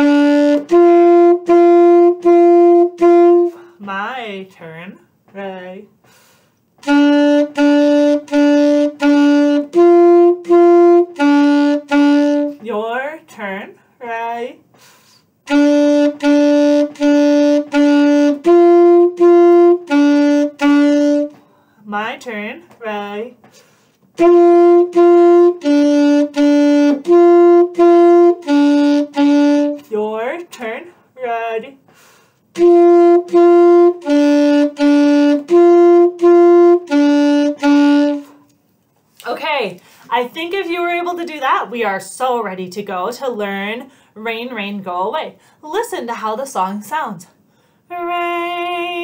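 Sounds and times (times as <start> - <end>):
saxophone playing short notes: 0.0 - 3.6, 6.8 - 12.6, 15.5 - 21.4, 24.2 - 29.8, 32.6 - 38.4.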